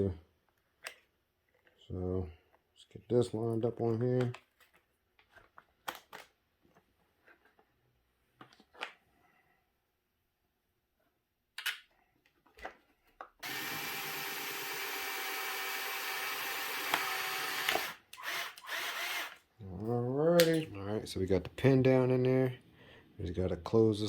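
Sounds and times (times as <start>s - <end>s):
power drill running: 13.4s - 19.4s.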